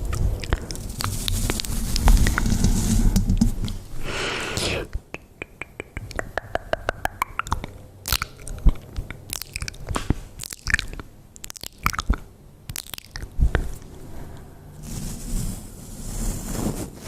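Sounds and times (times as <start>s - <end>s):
lip and tongue clicks: 0.1s - 2.5s, 4.6s - 13.9s.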